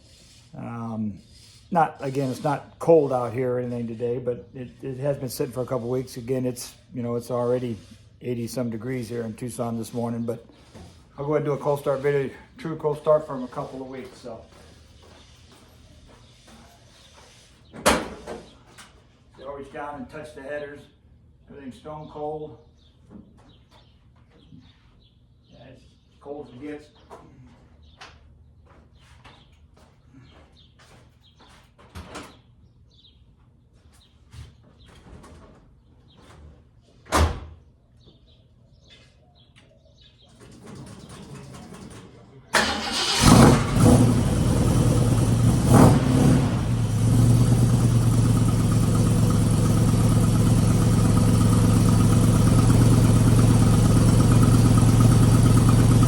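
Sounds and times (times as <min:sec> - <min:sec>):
car engine starting and idling: 0:42.6 - 0:56.0
engine revving: 0:42.6 - 0:56.0
starter motor whirr: 0:42.6 - 0:56.0.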